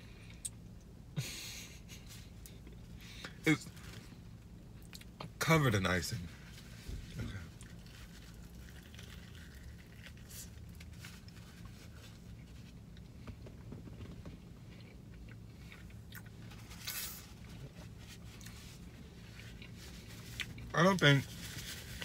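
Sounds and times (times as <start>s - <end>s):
person chewing: 7.4s - 12.4s, 14.7s - 20.7s.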